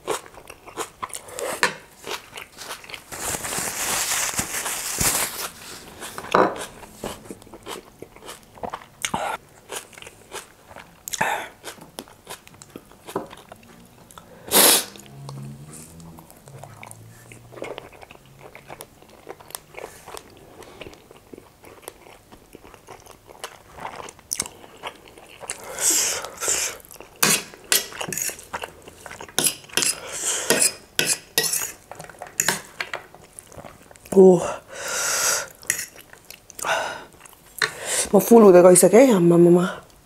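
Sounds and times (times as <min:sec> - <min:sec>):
close chewing with mouth smacks: 0:00.0 - 0:03.1, 0:06.0 - 0:14.3, 0:16.1 - 0:30.0, 0:33.1 - 0:34.1
cutlery clinking on a plate: 0:29.4 - 0:32.9.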